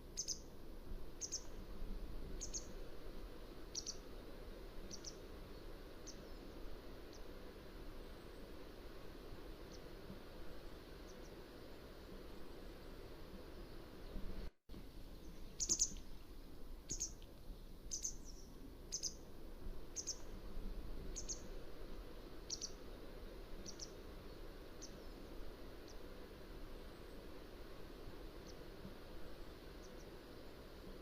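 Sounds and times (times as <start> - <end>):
wagtail calling: 0.1 - 0.5, 1.2 - 1.5, 3.7 - 4.0, 4.9 - 5.2, 15.3 - 16.0, 17.9 - 19.2, 20.0 - 20.3, 22.5 - 22.8, 23.6 - 24.0.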